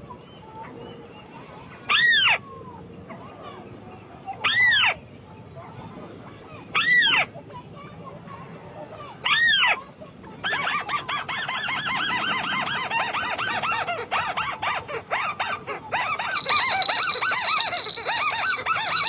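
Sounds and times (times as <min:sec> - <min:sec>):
crakes calling: 0:16.1 - 0:19.0.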